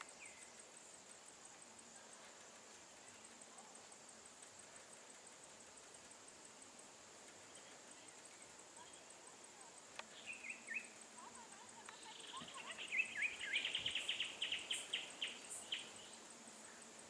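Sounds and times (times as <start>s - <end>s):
high insect drone: 0.0s - 17.0s
bird calling: 10.0s - 16.9s.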